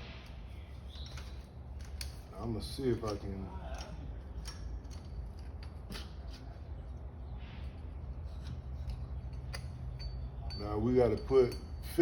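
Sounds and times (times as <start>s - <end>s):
steady low hum: 0.0s - 12.0s
parts clicking and tapping: 0.9s - 6.6s.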